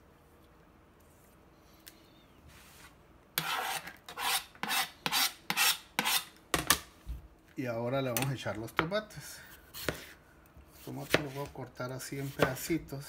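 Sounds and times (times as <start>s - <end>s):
knife scraping plastic cutting board: 3.4s - 6.3s, 9.8s - 12.7s.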